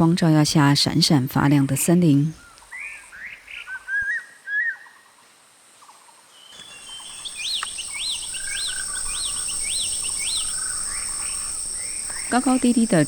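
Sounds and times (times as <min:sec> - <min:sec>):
bird whistled call: 0:06.4 - 0:12.4
high insect drone: 0:06.6 - 0:13.0.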